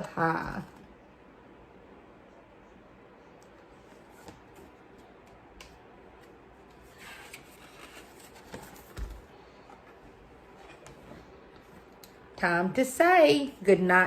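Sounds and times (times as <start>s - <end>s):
paper pages turning: 6.2s - 9.2s.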